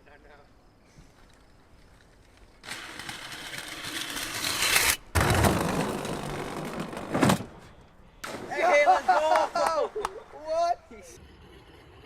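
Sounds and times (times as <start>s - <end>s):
metal rim scraping down wooden ramp: 2.6s - 7.6s.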